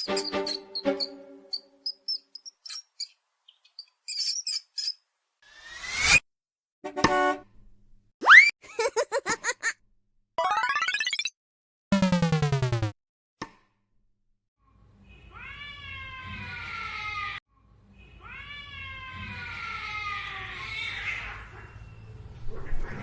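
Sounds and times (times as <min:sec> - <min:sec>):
falling cartoon sound effect: 0:08.2 - 0:08.5, 0:10.4 - 0:11.3, 0:12.0 - 0:12.9.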